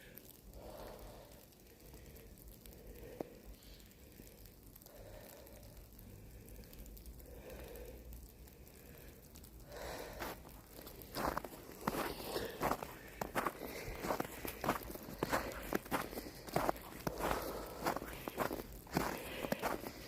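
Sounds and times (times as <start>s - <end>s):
slow breathing: 0.0s - 20.0s
footsteps on forest ground: 9.8s - 20.0s.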